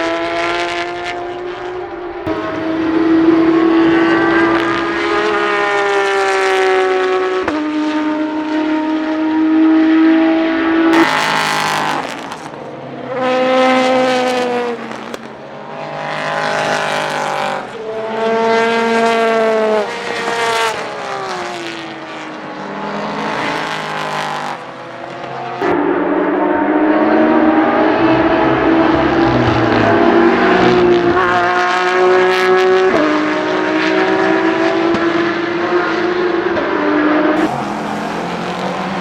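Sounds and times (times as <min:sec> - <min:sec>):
loud rough engine: 0:00.0 - 0:12.6, 0:25.6 - 0:39.0
race car engine at full throttle: 0:00.0 - 0:39.0.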